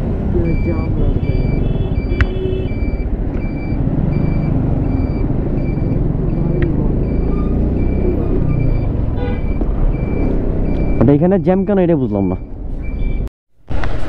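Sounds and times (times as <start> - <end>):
motorcycle engine: 0.0 - 11.0
road traffic rumbling: 0.0 - 14.0
electronic beep: 0.4 - 13.3.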